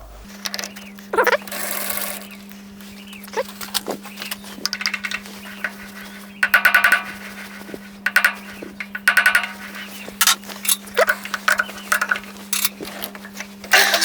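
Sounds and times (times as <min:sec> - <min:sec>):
steady low hum: 0:00.0 - 0:14.0
metallic clicks and taps: 0:08.1 - 0:13.5.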